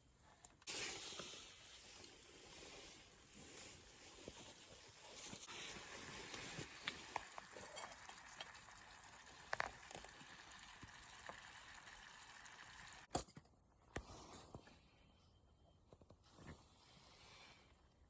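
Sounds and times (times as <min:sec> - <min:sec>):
campfire hissing and crackling: 0:00.6 - 0:13.1.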